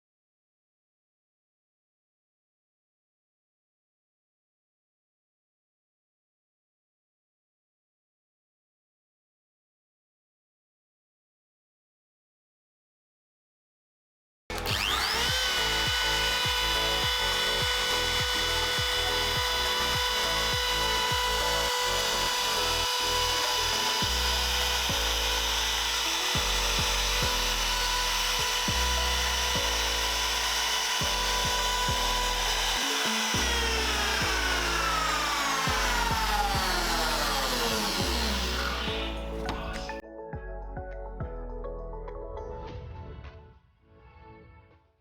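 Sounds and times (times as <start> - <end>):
power tool motor whining: 14.5 - 40.0.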